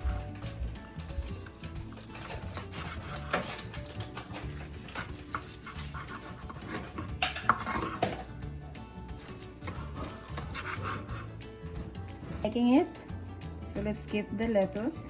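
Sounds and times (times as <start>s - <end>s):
background music: 0.0s - 15.0s
kitchen utensils knocking: 1.9s - 8.3s.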